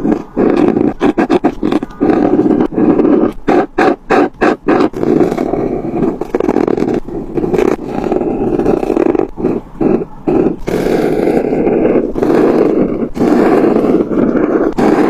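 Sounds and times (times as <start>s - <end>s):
colouring strokes rubbing on paper: 0.0s - 15.0s.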